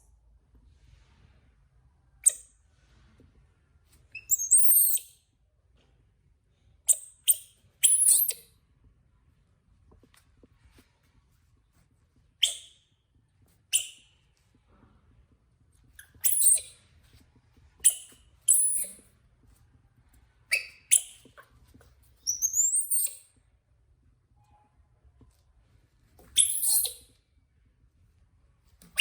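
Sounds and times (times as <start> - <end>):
baby monkey squeaky chirps: 4.1 - 5.1, 6.9 - 8.4, 12.4 - 12.8, 16.0 - 16.8, 17.8 - 19.0, 20.5 - 21.2, 22.2 - 23.3, 26.4 - 27.1.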